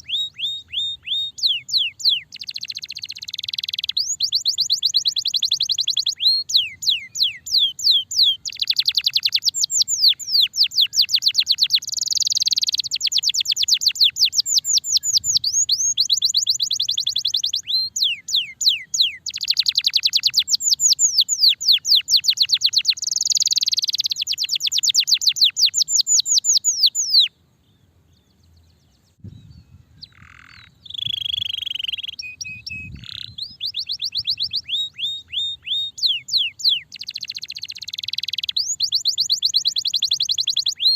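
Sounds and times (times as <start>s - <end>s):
canary singing fast trills: 0.0s - 40.9s.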